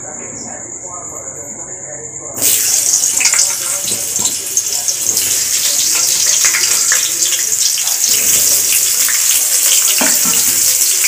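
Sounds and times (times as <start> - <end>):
potatoes sizzling in hot oil: 2.4 - 11.0.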